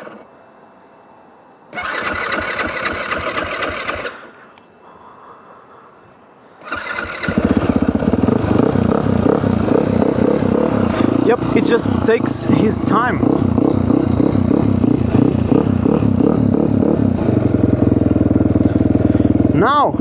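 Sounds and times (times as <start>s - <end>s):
starter motor cranking: 1.8s - 4.1s, 6.6s - 13.7s
motorcycle engine running: 6.8s - 20.0s.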